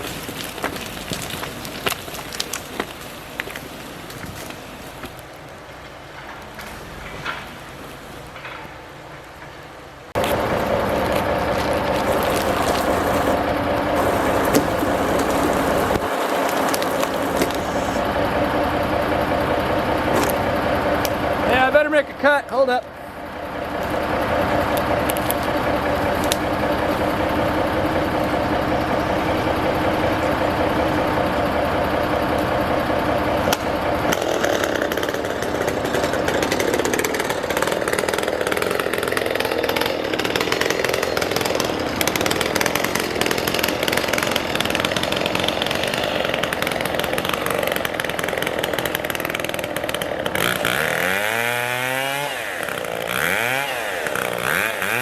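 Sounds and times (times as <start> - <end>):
chainsaw cutting timber: 10.2 - 22.1, 23.5 - 31.5, 33.4 - 55.0.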